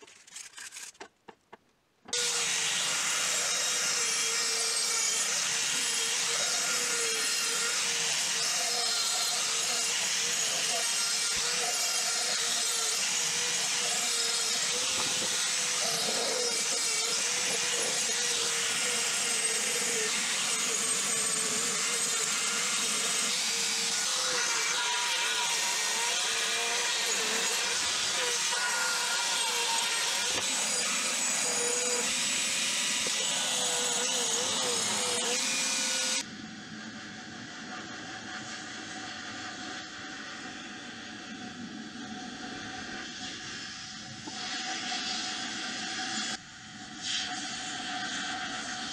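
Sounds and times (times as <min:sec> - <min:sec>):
rotary tool grinding metal: 0:00.0 - 0:01.1, 0:02.1 - 0:36.3.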